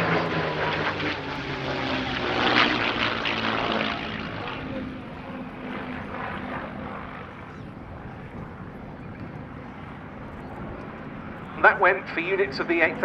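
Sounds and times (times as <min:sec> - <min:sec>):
propeller plane engine: 0:00.0 - 0:13.0.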